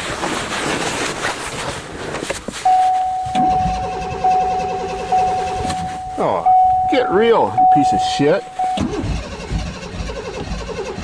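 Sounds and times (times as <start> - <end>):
car engine cranking: 2.1 - 11.0
steady high tone: 2.7 - 8.9.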